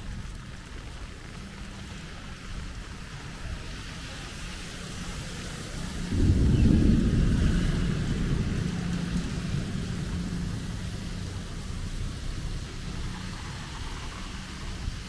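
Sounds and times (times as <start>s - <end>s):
rain hissing on street: 0.0s - 15.0s
traffic: 0.0s - 15.0s
deep low rumble: 6.1s - 12.9s.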